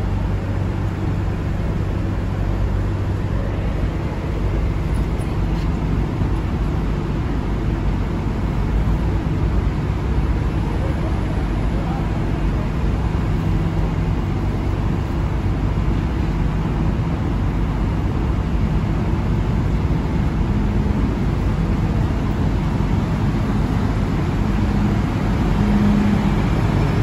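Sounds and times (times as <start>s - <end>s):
stopped train low hum: 0.0s - 27.0s
train pulling in: 19.2s - 27.0s.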